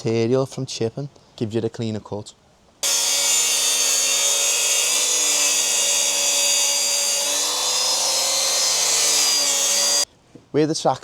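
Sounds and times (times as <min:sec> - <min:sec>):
circular saw whining: 0:02.8 - 0:10.1
saw blade cutting board: 0:02.8 - 0:10.1.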